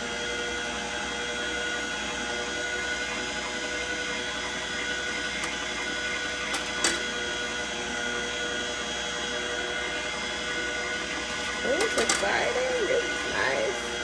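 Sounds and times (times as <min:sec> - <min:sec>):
juicer motor whining: 0:00.0 - 0:14.0.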